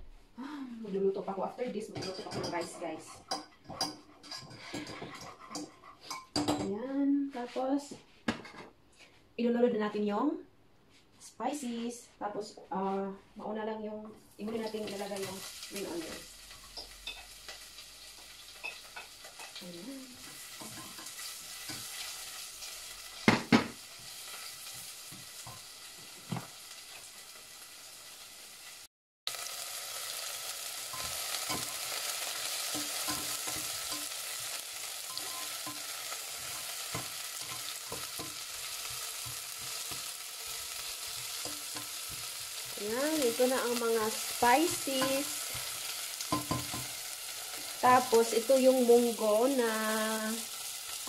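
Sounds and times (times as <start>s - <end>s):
vegetables sizzling in oil: 0.4s - 6.6s, 13.6s - 51.0s
spatula stirring and scraping: 1.8s - 6.4s, 14.5s - 23.2s, 30.9s - 48.5s.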